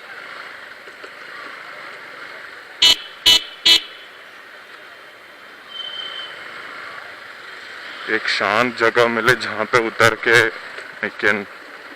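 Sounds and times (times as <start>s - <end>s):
road noise: 0.0s - 11.9s
vehicle horn tooting: 2.8s - 4.2s.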